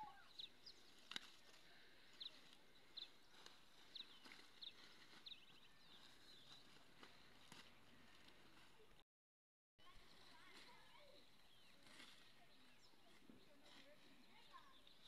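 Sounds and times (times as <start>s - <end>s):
bird chirping: 0.0s - 1.3s, 2.1s - 8.3s.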